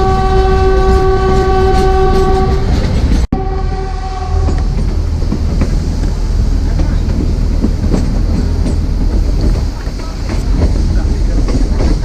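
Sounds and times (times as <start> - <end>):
diesel locomotive horn: 0.0 - 4.9
train rumbling on track: 0.0 - 12.0.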